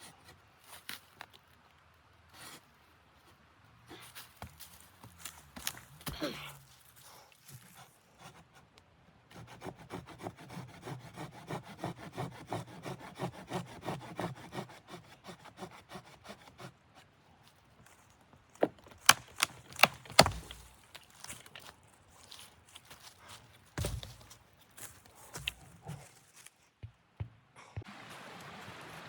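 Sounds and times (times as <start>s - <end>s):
hand saw cutting wood: 9.3s - 17.1s.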